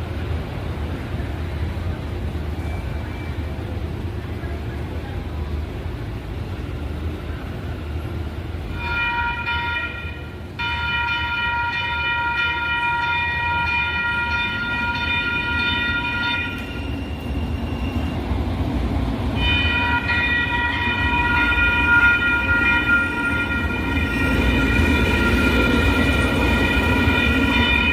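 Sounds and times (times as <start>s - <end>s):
rail rumble: 0.0s - 27.9s
train horn blasts: 8.8s - 16.9s, 19.4s - 27.9s.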